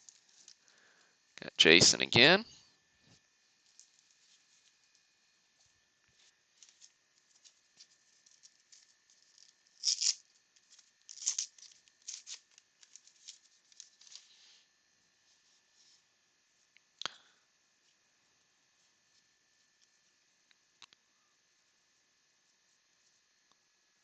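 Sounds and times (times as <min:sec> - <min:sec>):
wrapper crinkling: 0:00.0 - 0:00.8, 0:03.5 - 0:05.2, 0:06.5 - 0:14.4.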